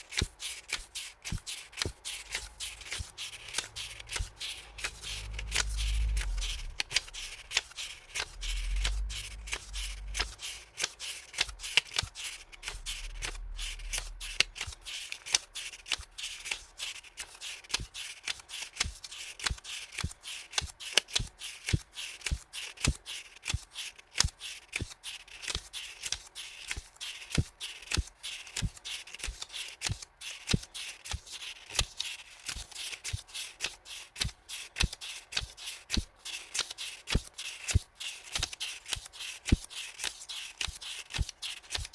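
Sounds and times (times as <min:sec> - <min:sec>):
paper rustling and clicks: 0:00.1 - 0:41.9.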